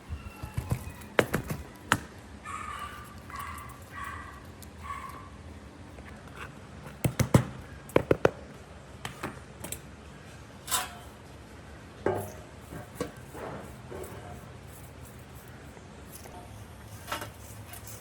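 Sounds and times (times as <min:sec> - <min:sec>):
tools knocking and clicking: 0:06.8 - 0:08.4.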